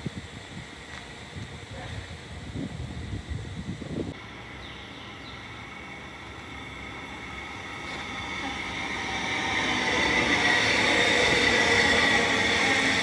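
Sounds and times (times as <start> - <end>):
electric train passing: 0.0 - 13.0
high whine: 4.1 - 13.0.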